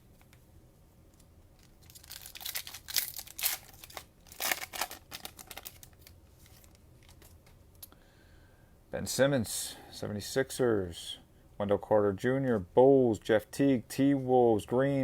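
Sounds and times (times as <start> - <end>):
cellophane wrapper crinkling: 1.6 - 7.4.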